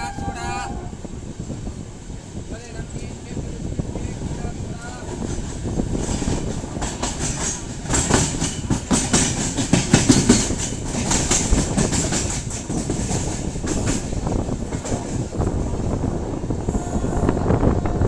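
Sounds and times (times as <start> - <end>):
train low rumble: 0.0 - 18.0
train wheels clattering: 4.1 - 18.0.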